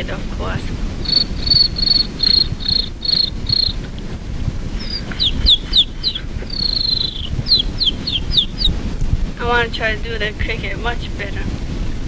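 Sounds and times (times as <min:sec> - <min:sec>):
person imitating cricket chirps: 0:01.0 - 0:04.0, 0:04.8 - 0:08.7.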